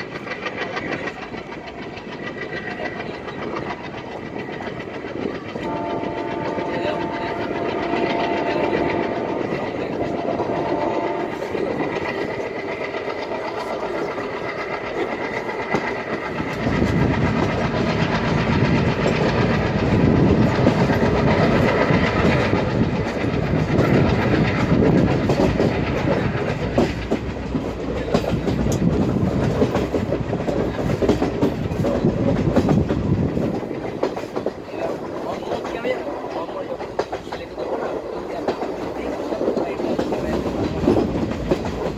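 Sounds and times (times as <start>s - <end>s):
train wheels clattering over rail joints: 0.0s - 41.9s
train horn: 5.6s - 11.8s.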